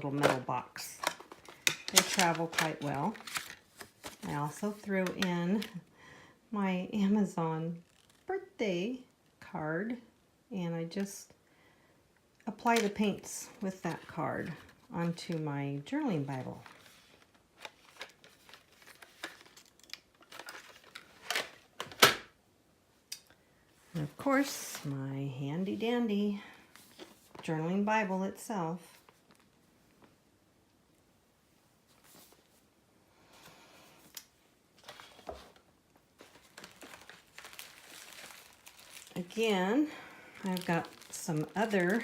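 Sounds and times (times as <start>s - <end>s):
craft supplies rustling and crinkling: 0.0s - 5.9s, 12.6s - 22.1s, 25.7s - 27.5s, 28.8s - 30.2s, 31.8s - 32.7s, 33.3s - 42.0s
bag rustling: 36.2s - 42.0s.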